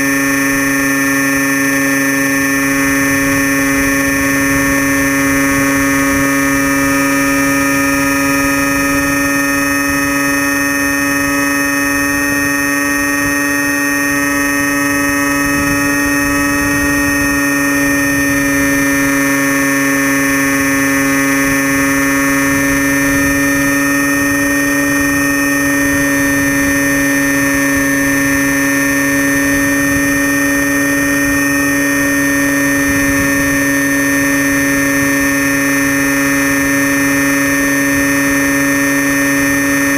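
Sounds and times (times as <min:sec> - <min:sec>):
model plane motor whine: 0:00.0 - 0:39.9.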